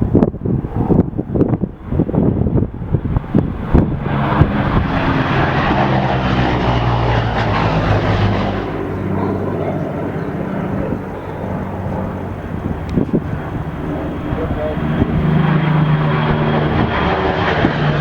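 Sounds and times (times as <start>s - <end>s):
wind knocking on microphone: 0.0s - 5.2s, 11.9s - 13.7s
plane engines droning on flyby: 0.0s - 18.0s.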